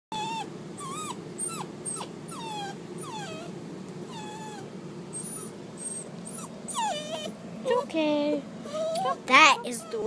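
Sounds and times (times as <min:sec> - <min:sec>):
dog whining in high squeals: 0:00.2 - 0:03.5, 0:04.1 - 0:07.4, 0:08.6 - 0:10.0.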